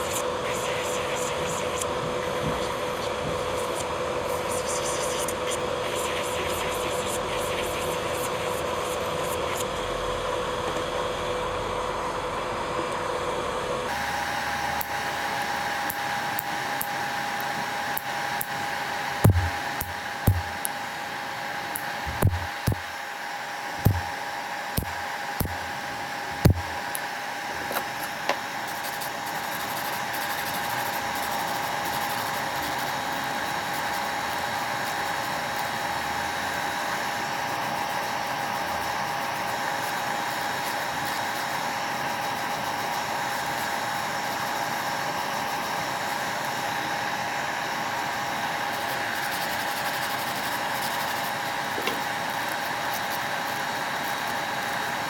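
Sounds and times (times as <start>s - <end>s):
small electric motor whining: 13.9s - 55.0s
sharp taps: 19.2s - 20.7s, 21.8s - 22.8s, 23.8s - 24.1s, 24.8s - 25.6s, 26.4s - 26.7s.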